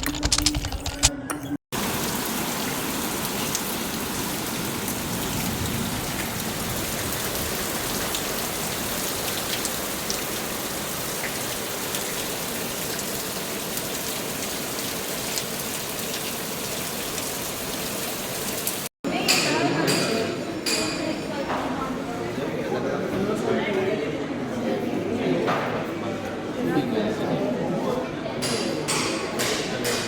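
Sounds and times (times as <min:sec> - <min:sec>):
steady rain falling: 0:01.8 - 0:18.9.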